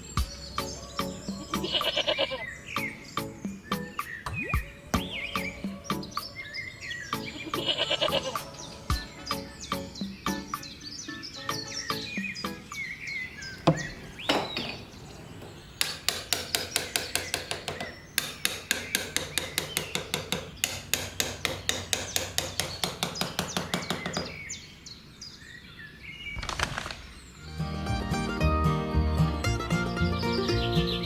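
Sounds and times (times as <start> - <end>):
hammer tapping on wood: 13.6 - 14.9, 15.8 - 24.4.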